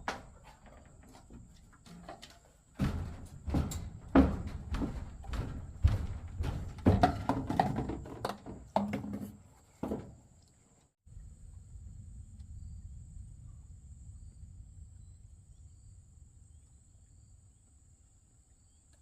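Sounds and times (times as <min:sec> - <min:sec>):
objects knocking and thumping: 0:00.0 - 0:10.3.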